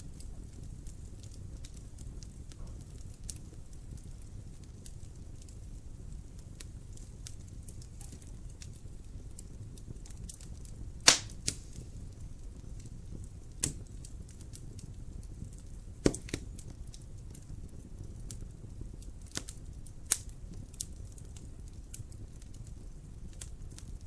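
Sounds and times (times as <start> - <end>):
low rumble of burning: 0.0 - 24.0
wood fire pops and snaps: 0.0 - 24.0.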